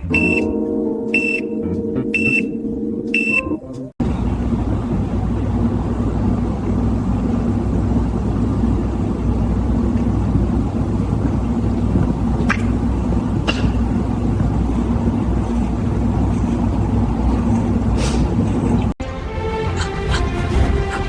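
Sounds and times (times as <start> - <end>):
high electronic beeps: 0.0 - 0.6, 1.2 - 2.6, 3.2 - 3.6
steady electronic tones: 0.0 - 19.0
car engine running: 4.0 - 19.0.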